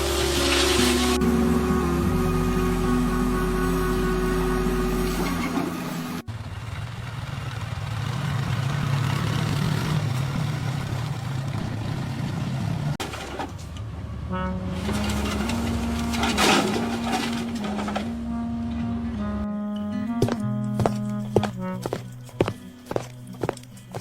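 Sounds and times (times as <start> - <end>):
tractor engine rumbling: 0.0 - 24.0
short pitched tones: 14.3 - 22.4.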